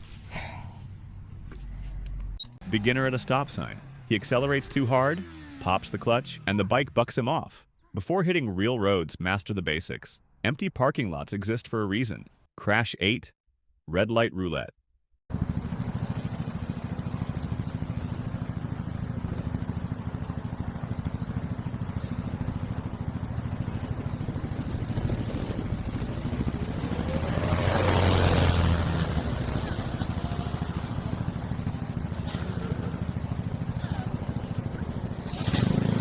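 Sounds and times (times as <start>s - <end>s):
motorcycle engine running: 15.3s - 36.0s
vehicle passing: 15.5s - 36.0s.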